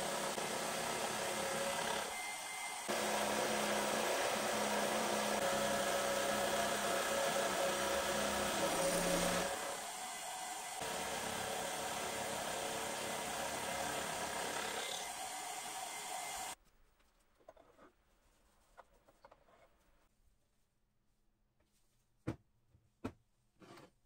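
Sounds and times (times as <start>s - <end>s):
electric motor whirring: 0.0s - 16.6s.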